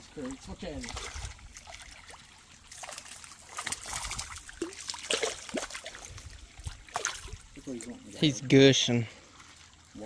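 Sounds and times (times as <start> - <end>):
creek water splashing and trickling: 0.0 - 10.0.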